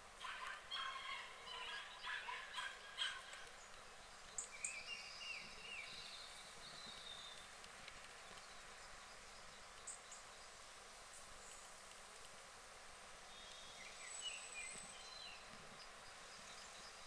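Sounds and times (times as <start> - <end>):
harsh rasping bird calls: 0.2 - 3.7
small bird whistled song: 13.3 - 15.5.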